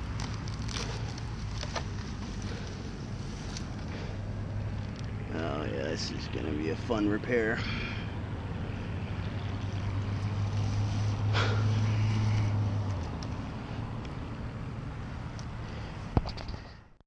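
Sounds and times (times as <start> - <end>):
low steady hum: 0.0 - 16.7.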